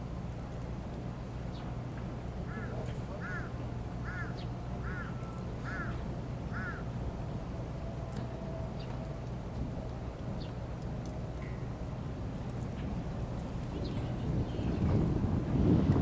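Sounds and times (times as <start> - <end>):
low hum of traffic: 0.0 - 16.0
bird calling: 2.5 - 6.9.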